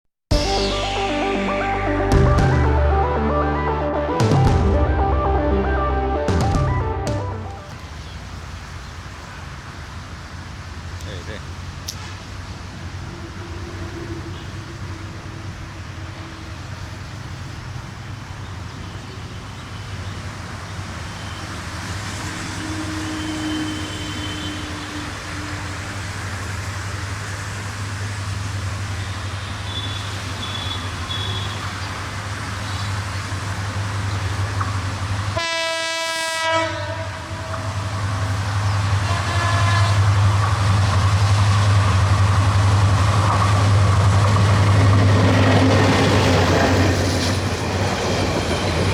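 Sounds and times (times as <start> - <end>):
locomotive horn blast: 0.3 - 7.8, 22.0 - 26.4, 29.0 - 31.8, 35.4 - 40.5
diesel locomotive engine drone: 0.3 - 48.9.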